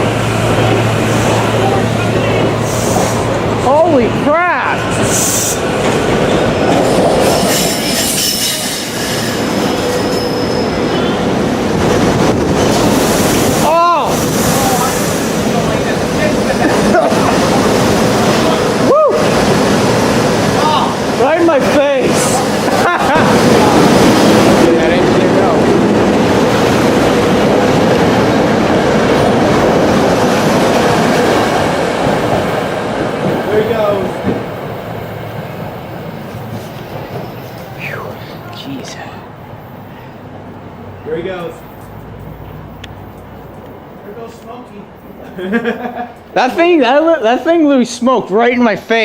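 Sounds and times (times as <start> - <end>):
train wheels rushing on rail: 0.0 - 49.0
high wheel squeal: 6.8 - 11.2.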